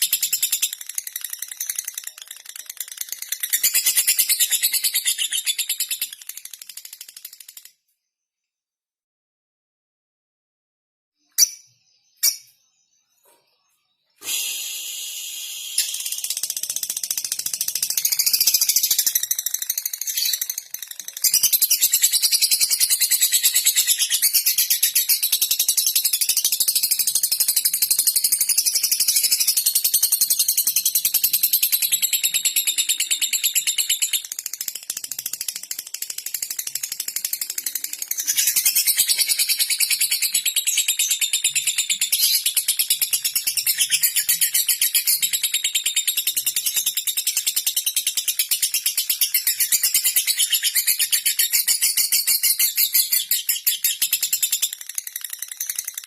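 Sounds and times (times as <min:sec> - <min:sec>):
short bird chirps: 0:11.2 - 0:16.8
lovebird ticking chatter: 0:15.3 - 0:24.5.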